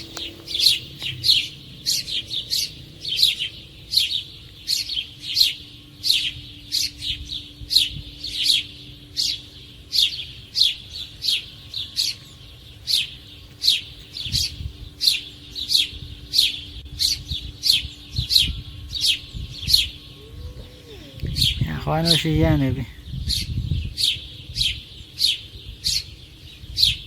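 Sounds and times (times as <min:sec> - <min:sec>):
small animal chirping: 0:19.7 - 0:22.6.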